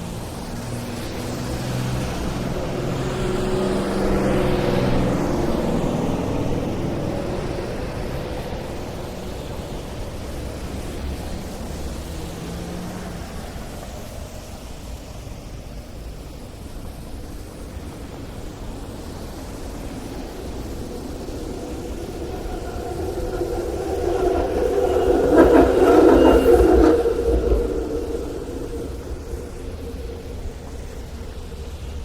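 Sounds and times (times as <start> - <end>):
low traffic rumble: 18.1 - 32.0
vehicle passing: 19.8 - 32.0.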